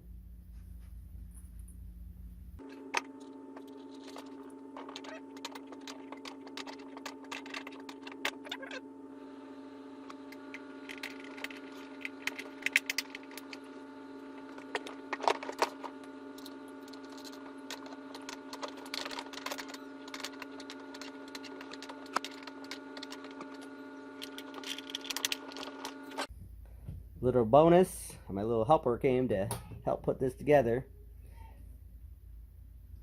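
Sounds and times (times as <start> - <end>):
steady hum: 0.0 - 33.0
small plastic parts clicking: 24.2 - 26.3.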